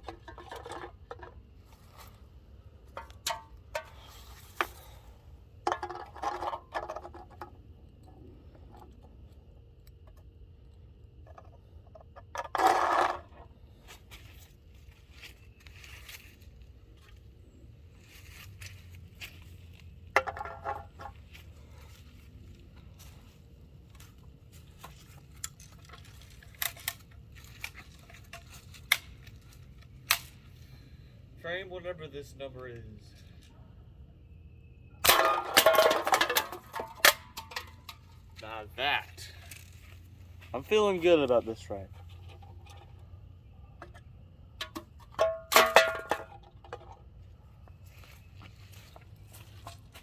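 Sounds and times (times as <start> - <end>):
cans clattering over: 0.0 - 1.4, 5.7 - 7.6, 12.2 - 13.4, 20.2 - 21.1, 35.0 - 38.0, 44.6 - 47.0
low steady hum: 0.0 - 50.0.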